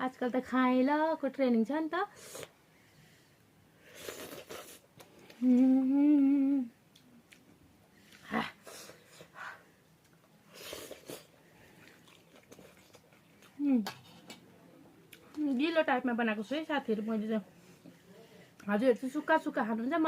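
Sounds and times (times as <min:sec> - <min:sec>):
soft eating sounds: 0:03.8 - 0:16.0, 0:16.7 - 0:19.4
woman humming: 0:05.3 - 0:06.8.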